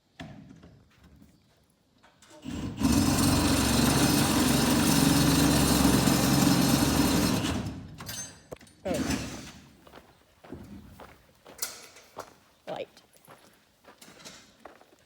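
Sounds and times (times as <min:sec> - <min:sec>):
small motor running: 0:02.5 - 0:07.6.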